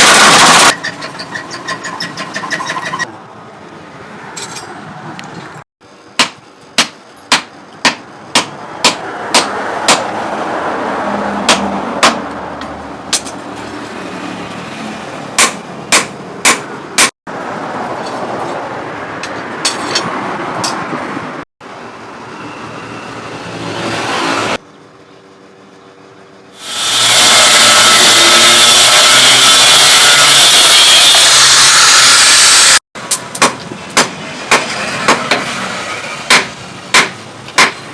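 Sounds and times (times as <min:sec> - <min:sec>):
steady mechanical noise: 0:00.0 - 0:04.0, 0:05.8 - 0:37.9
hammer striking anvil: 0:06.2 - 0:10.1, 0:11.5 - 0:13.4, 0:15.4 - 0:17.1, 0:36.3 - 0:37.9.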